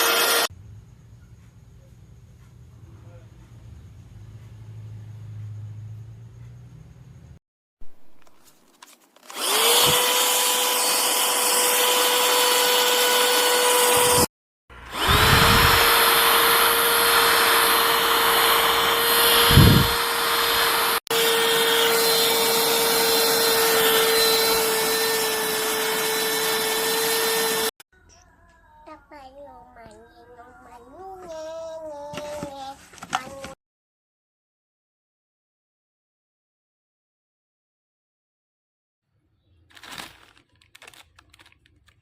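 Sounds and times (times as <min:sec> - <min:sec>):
handheld vacuum cleaner whine: 0:00.0 - 0:00.5, 0:09.2 - 0:27.8.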